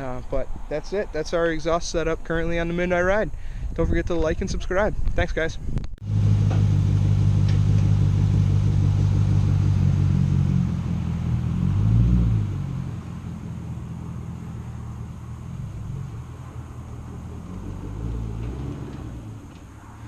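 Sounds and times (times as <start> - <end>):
car engine rumbling: 6.0 - 20.0.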